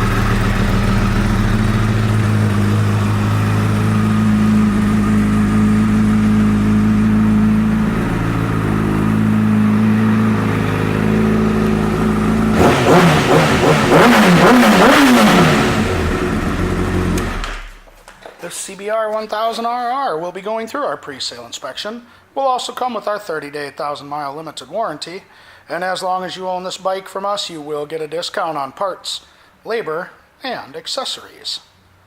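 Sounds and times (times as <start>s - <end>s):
motorcycle engine idling: 0.0s - 17.8s
motorcycle engine revving: 0.0s - 17.8s.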